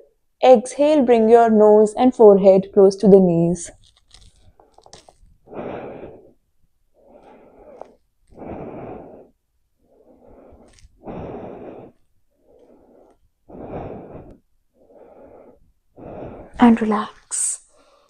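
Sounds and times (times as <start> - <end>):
person breathing deeply: 5.4 - 16.6.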